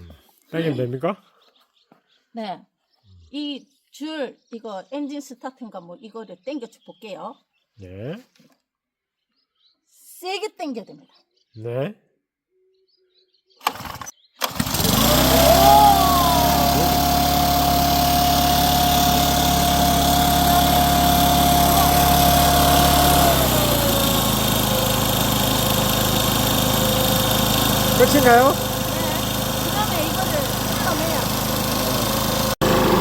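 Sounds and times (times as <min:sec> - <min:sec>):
starter pull rattle: 0:13.6 - 0:32.6
leaf blower engine running: 0:13.6 - 0:33.0.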